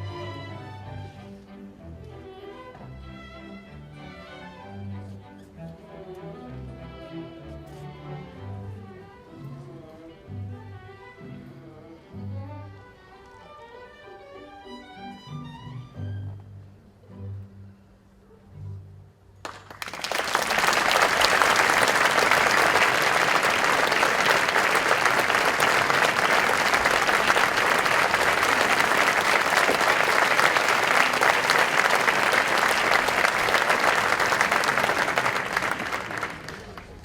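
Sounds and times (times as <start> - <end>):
audience applauding: 19.4 - 37.0.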